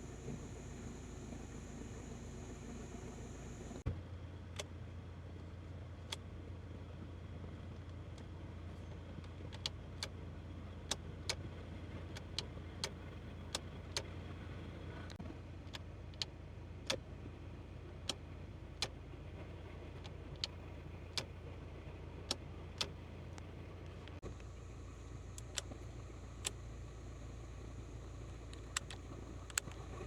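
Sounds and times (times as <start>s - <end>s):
car engine hum inside cabin: 0.0s - 3.9s, 9.6s - 30.0s
turn signal relay clicking: 25.3s - 26.8s, 28.4s - 29.9s.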